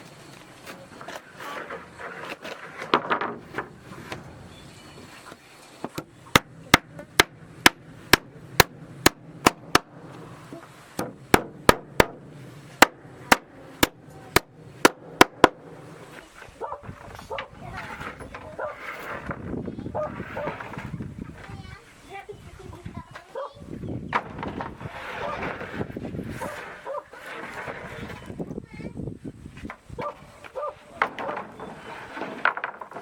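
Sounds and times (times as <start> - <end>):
hammer striking wooden planks: 5.9 - 10.2, 11.0 - 15.8
wood rustling when handled: 30.4 - 33.0.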